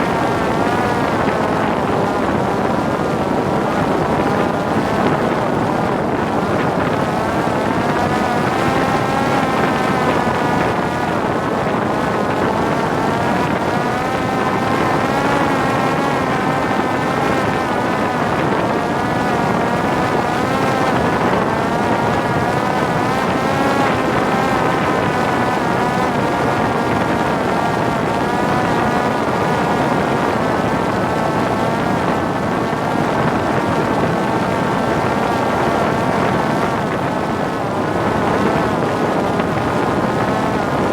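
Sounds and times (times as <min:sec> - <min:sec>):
drone propeller whining: 0:00.0 - 0:29.6
wind on microphone: 0:00.0 - 0:40.9.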